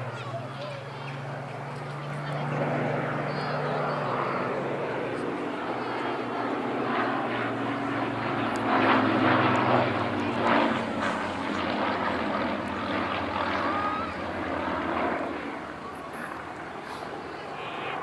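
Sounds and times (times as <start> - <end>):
propeller plane flying past: 0.0 - 18.0.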